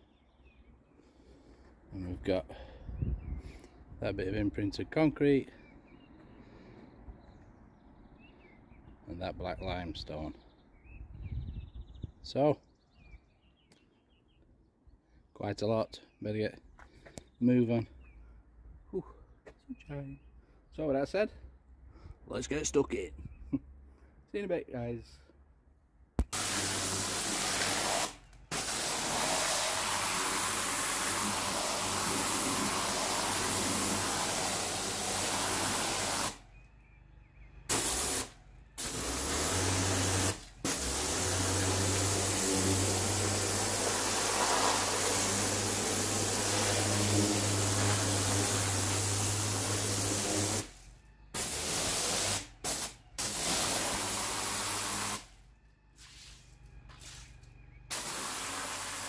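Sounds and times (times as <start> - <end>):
pressure washer spraying paving: 26.2 - 36.4, 37.7 - 50.8, 51.4 - 55.3, 57.9 - 59.0.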